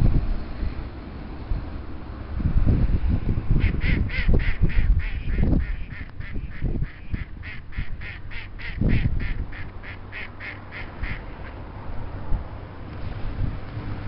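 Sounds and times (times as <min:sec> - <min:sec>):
ducks quacking: 0:03.6 - 0:11.6.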